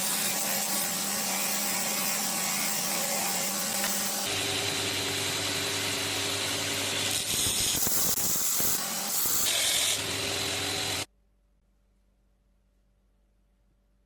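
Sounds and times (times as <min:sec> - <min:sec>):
power tool motor hum: 0:00.0 - 0:11.1
loud hiss of tool on steel: 0:07.3 - 0:09.5.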